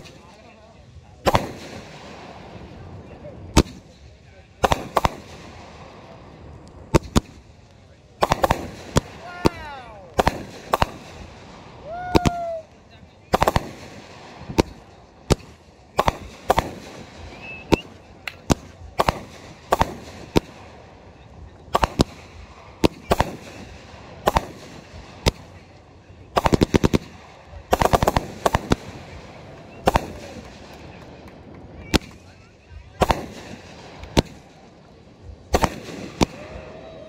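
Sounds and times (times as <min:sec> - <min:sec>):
fireworks bangs: 0:00.0 - 0:37.0
rattling fireworks reports: 0:00.0 - 0:37.0.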